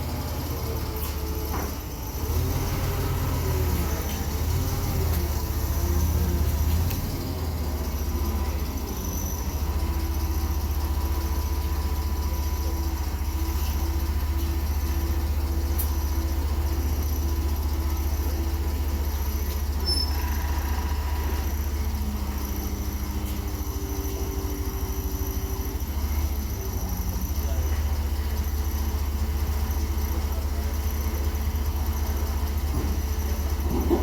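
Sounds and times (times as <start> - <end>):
vehicle engine rumbling: 0.0 - 34.0.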